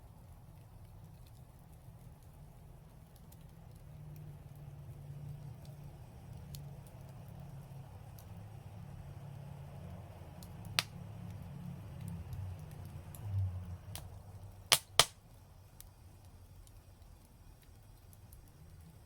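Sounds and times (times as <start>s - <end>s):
fire crackling: 0.0s - 19.0s
sharp pops from fire: 0.7s - 8.9s, 9.8s - 19.0s.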